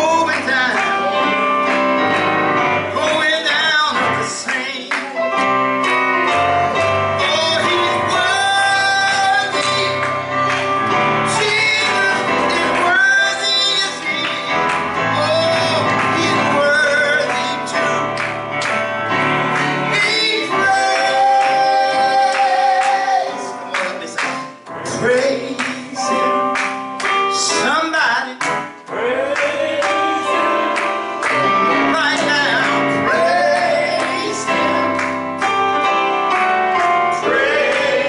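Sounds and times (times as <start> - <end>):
instrumental accompaniment: 0.0 - 38.0
men and women singing: 19.9 - 24.0, 28.9 - 35.0, 37.2 - 38.0.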